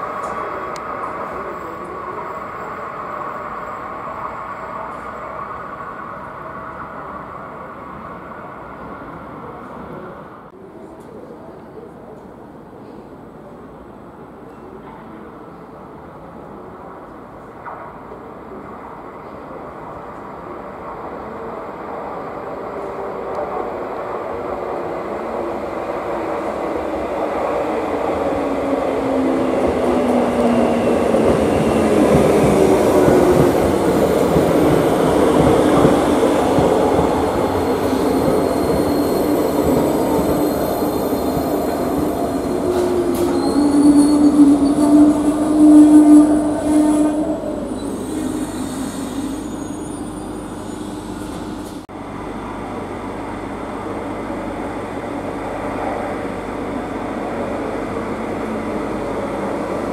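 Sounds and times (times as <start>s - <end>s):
rail noise: 0.0s - 59.9s
train wheel squeal: 37.6s - 51.5s.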